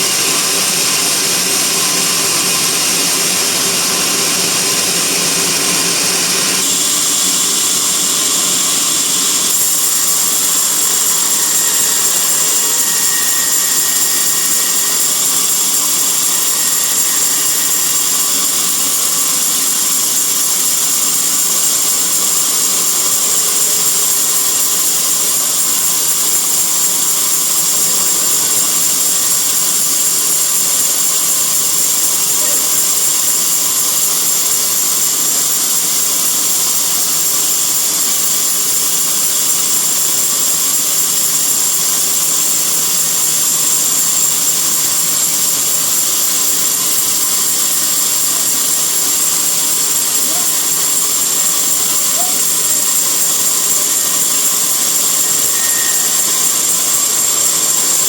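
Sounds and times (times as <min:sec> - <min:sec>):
band saw whining: 0:00.0 - 0:58.0.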